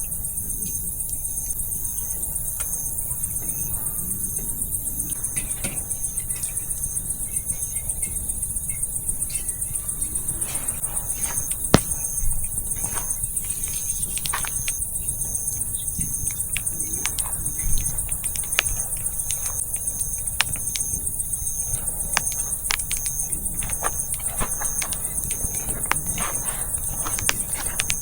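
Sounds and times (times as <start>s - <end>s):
night insects trilling: 0.0s - 28.0s
short insect chirp: 0.0s - 28.0s
wood fire crackling and popping: 10.4s - 15.3s, 16.1s - 28.0s.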